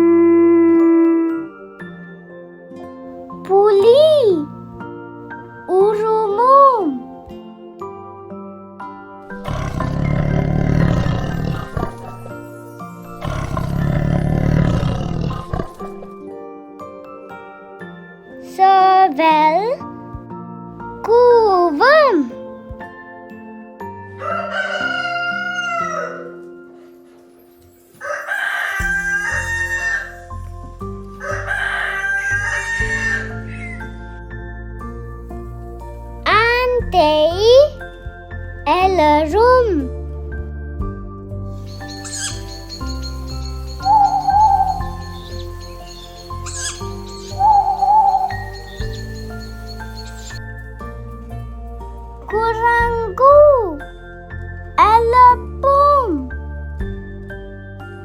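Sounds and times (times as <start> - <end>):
background music: 0.0 - 58.0
children's background tune: 0.0 - 58.0
tiger roaring: 9.3 - 12.4, 13.1 - 16.2
rooster crowing: 24.2 - 26.4, 28.0 - 30.3, 31.2 - 34.0, 41.7 - 50.4.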